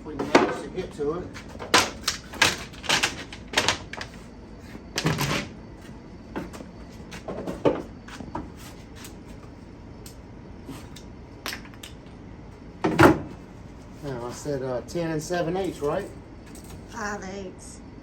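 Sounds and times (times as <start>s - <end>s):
boards knocking and clunking: 0.2s - 4.2s, 6.3s - 8.5s.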